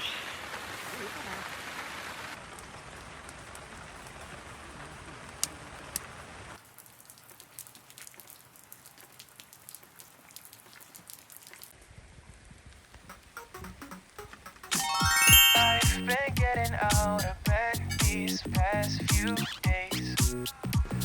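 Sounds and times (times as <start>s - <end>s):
steady rain: 0.0s - 11.8s
raindrops tapping: 2.4s - 11.7s
sharp ticks: 13.1s - 14.8s.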